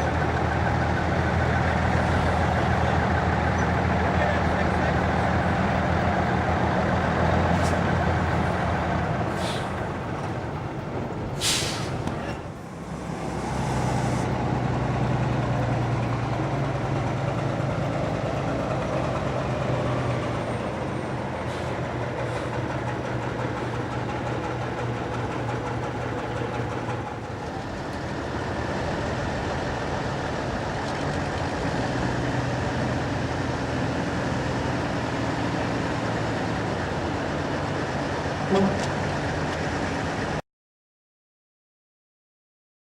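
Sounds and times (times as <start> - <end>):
truck engines humming: 0.0 - 40.4
air hiss: 11.4 - 12.0.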